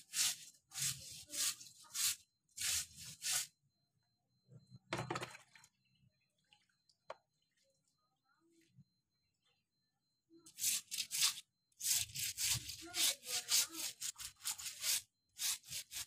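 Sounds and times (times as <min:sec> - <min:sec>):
rhythmic scraping strokes: 0:10.5 - 0:16.0.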